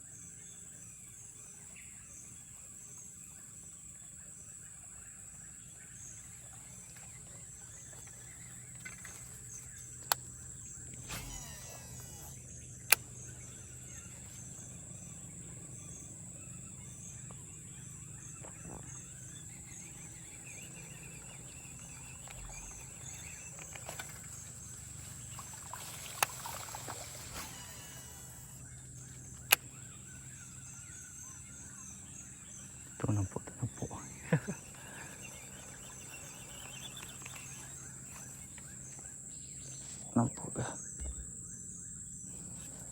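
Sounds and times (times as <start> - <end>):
insects droning: 0.0 - 42.9
sharp clicks: 10.0 - 13.4, 29.3 - 29.7.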